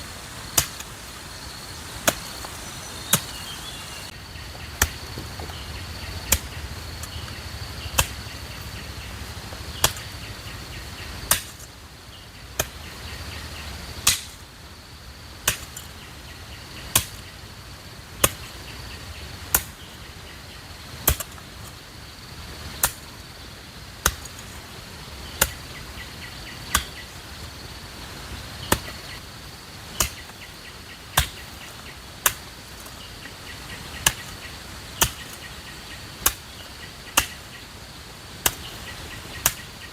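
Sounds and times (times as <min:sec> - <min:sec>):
high insect drone: 0:00.0 - 0:11.2
sharp chopping strikes: 0:01.6 - 0:03.8, 0:37.2 - 0:37.4.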